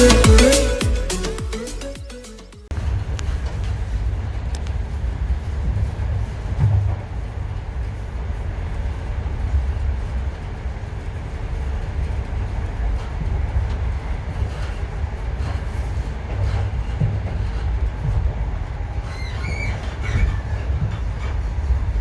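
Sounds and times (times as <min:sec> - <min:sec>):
train rumbling on rails: 0:02.7 - 0:22.0.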